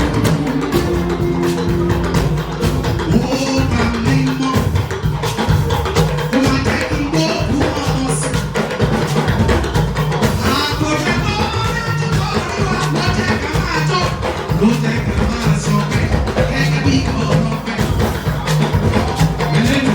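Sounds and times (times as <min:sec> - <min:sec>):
voices singing: 0:00.0 - 0:05.2, 0:10.4 - 0:19.9
drums and hand percussion: 0:00.0 - 0:19.9.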